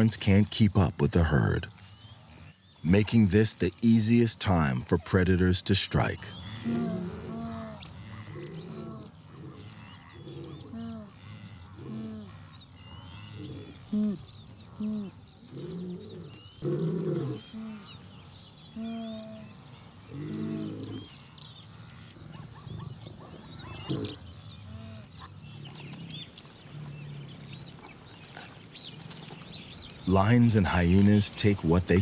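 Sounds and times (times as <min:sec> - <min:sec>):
wildebeest calling: 0:00.0 - 0:09.0, 0:29.9 - 0:32.0
birds chirping: 0:00.0 - 0:32.0.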